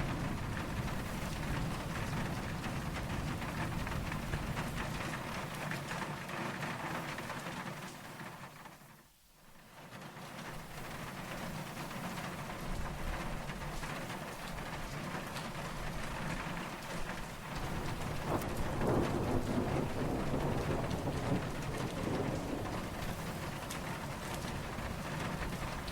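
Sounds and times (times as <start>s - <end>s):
steady rain falling: 0.0s - 25.9s.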